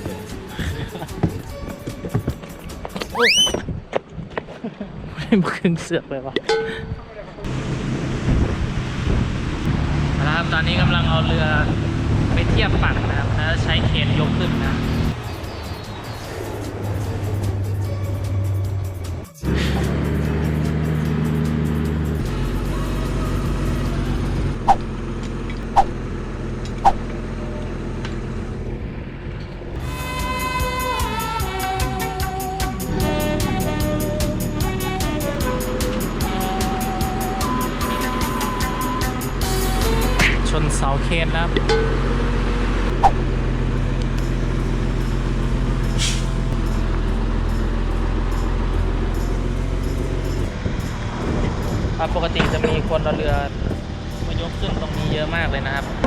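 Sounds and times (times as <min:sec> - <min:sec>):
crane engine running: 0:19.4 - 0:31.0, 0:41.4 - 0:52.5
short hiss: 0:46.0 - 0:46.3.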